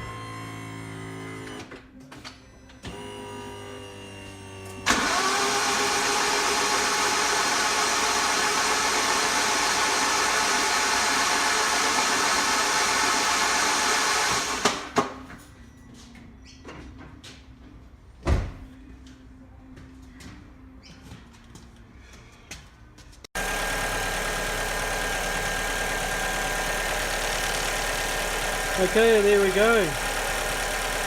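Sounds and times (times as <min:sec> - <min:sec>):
starter motor cranking engine: 0:04.8 - 0:14.9, 0:23.4 - 0:31.0
thump: 0:18.2 - 0:18.6.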